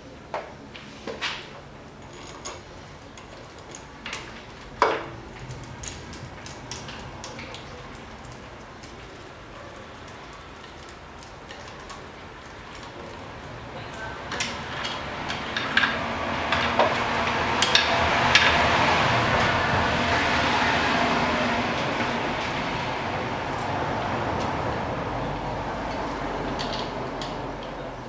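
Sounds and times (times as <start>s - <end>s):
metal tools clicking and clinking: 1.9s - 7.6s.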